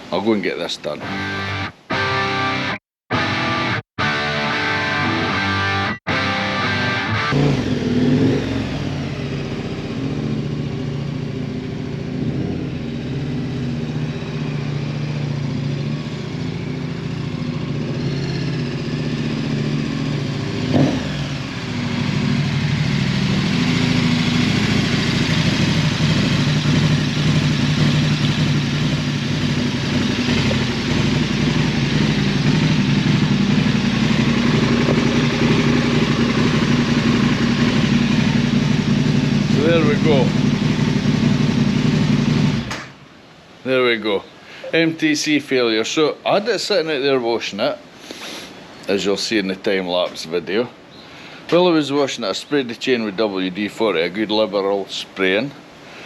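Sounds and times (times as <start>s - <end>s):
motorcycle engine running: 7.1s - 42.7s
sharp knock: 42.7s - 43.0s.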